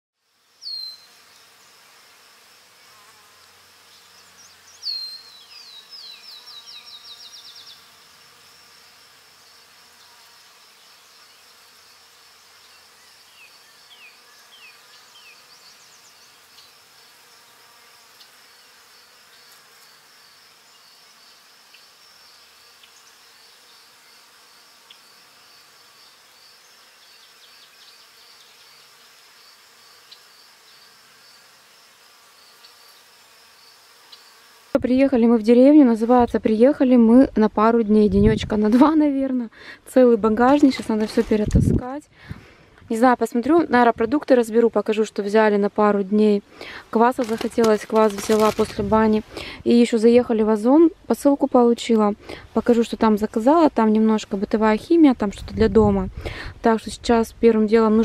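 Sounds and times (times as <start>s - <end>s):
songbirds singing: 0.5s - 1.7s, 3.8s - 8.0s, 12.4s - 31.4s.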